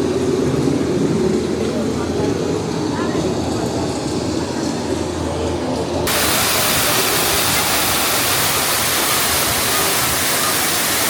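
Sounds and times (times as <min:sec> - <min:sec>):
rushing falling water: 0:06.1 - 0:11.0.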